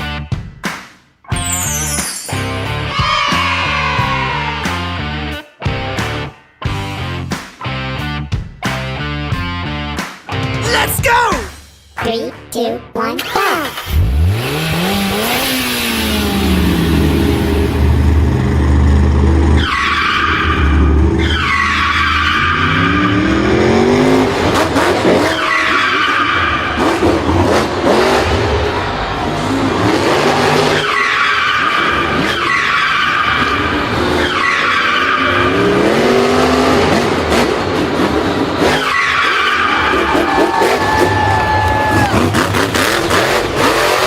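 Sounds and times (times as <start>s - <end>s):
racing engines revving: 13.2s - 44.0s
tyres screeching and skidding: 13.2s - 44.0s.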